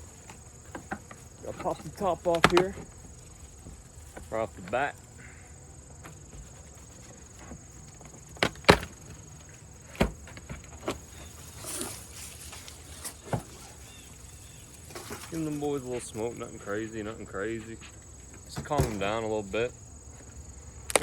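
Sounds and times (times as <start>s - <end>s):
sharp wooden knocks and cracks: 0.2s - 3.0s, 7.4s - 9.2s, 9.8s - 11.0s.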